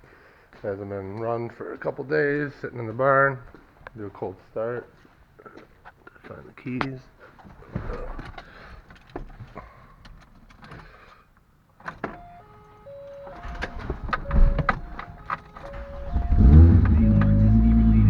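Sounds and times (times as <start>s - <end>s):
keys clicking and knocking: 11.8s - 17.4s
electronic warning chime: 12.2s - 18.0s
starter cranking engine: 13.3s - 18.0s.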